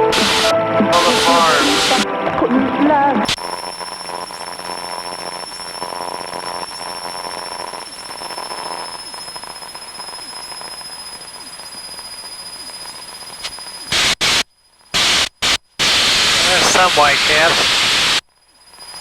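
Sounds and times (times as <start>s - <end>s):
loud burst of noise: 0.0s - 2.4s, 15.0s - 18.2s
high whine: 0.0s - 8.6s, 15.8s - 18.1s.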